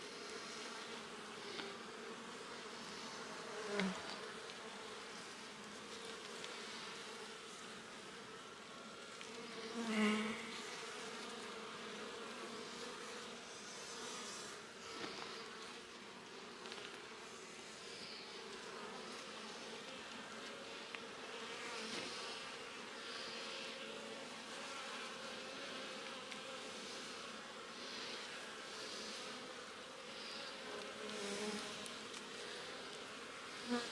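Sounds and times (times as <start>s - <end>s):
honeybees buzzing: 0.0s - 33.9s.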